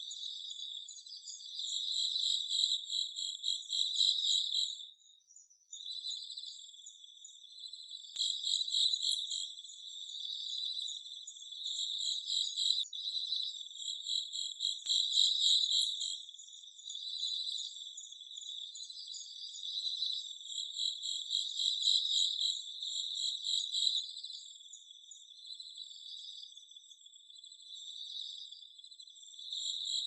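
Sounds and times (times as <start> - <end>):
faint ticks: 8.0 - 8.4, 14.7 - 15.1.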